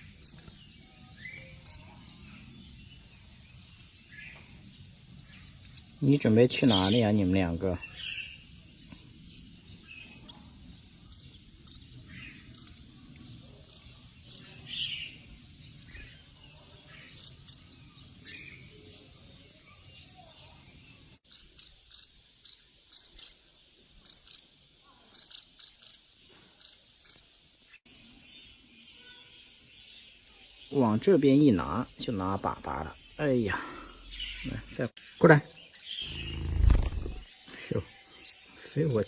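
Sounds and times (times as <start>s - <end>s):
birds giving high chirps: 0.0s - 23.3s, 30.7s - 39.0s
insects hissing: 0.0s - 28.8s, 30.6s - 39.0s.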